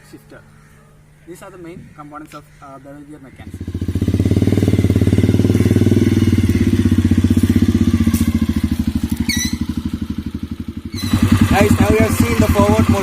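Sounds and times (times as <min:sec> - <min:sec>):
motorcycle engine idling: 0:03.3 - 0:13.0.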